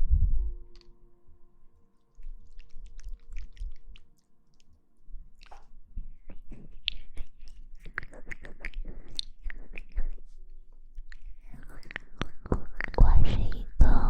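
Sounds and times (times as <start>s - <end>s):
quick wet clicks and crackles: 2.0s - 10.3s, 10.9s - 13.2s.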